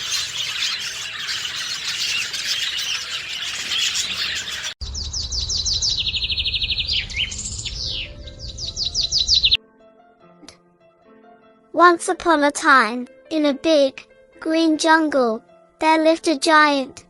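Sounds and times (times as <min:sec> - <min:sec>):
chorus of birds: 0:00.0 - 0:09.6
songbird chirping and trilling: 0:00.0 - 0:09.6
low rumble: 0:04.8 - 0:09.6.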